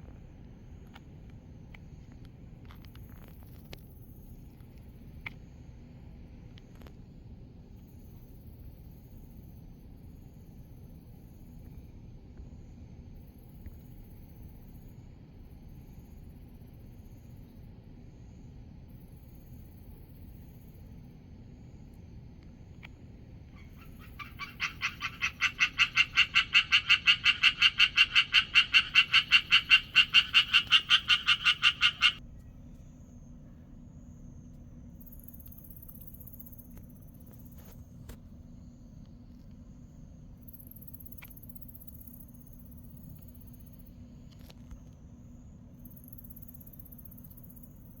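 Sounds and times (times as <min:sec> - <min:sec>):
low steady hum: 0:00.0 - 0:48.0
tree frog calling: 0:23.5 - 0:32.2.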